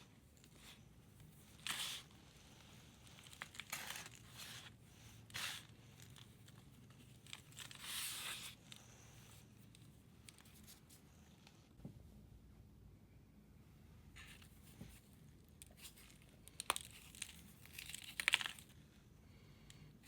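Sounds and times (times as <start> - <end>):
powder scraping: 0.0 - 11.0.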